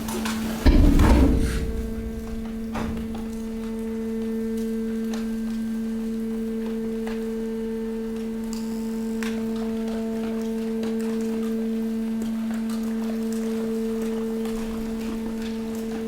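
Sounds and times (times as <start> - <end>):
waste compactor humming: 0.0 - 8.2.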